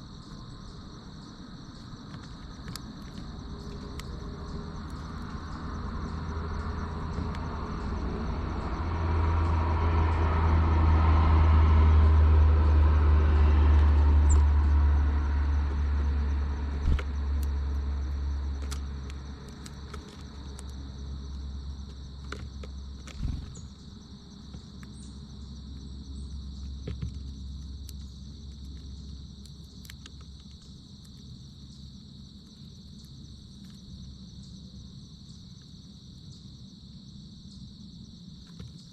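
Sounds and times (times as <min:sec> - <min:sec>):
insect chorus: 0:00.0 - 0:38.9
vehicle passing rumble: 0:02.4 - 0:29.6.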